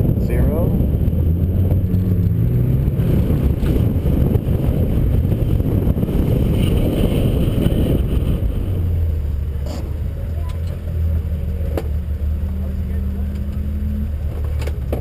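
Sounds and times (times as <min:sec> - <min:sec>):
wind noise on microphone: 0:00.0 - 0:11.4
car engine running: 0:00.0 - 0:15.0.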